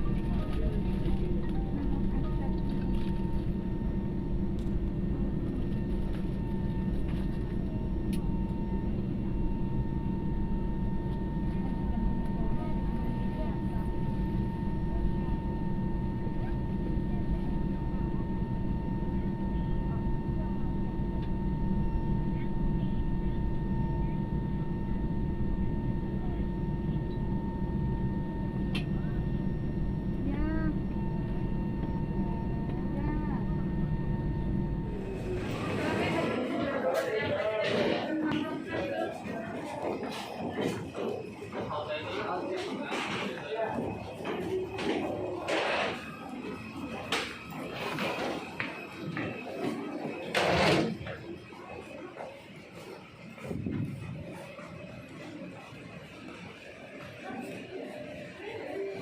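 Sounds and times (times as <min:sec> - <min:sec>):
low rumble with hum: 0:00.0 - 0:36.4
faint steady whine: 0:00.0 - 0:37.4
airliner engines droning in cabin: 0:00.0 - 0:59.0.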